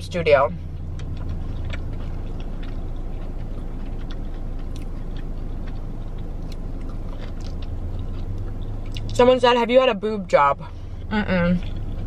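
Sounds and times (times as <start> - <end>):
low car cabin hum: 0.0 - 12.0
close-up chewing: 0.5 - 9.2.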